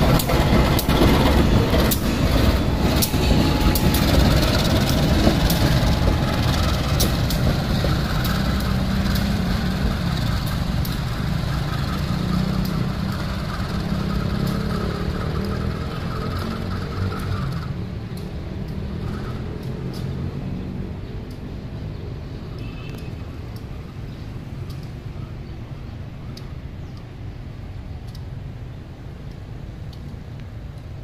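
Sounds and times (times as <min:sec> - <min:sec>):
wheels clicking over rail joints: 0:00.0 - 0:20.4
diesel locomotive engine rumble: 0:00.0 - 0:31.0.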